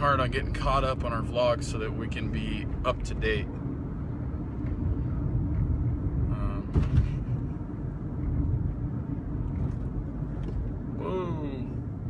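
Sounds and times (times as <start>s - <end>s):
car cabin road rumble: 0.0s - 12.0s
car jolt: 6.6s - 7.4s.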